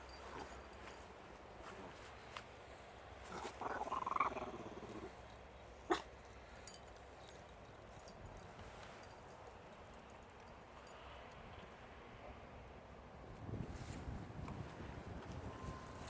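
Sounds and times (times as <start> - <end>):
dog growling: 3.3 - 5.2.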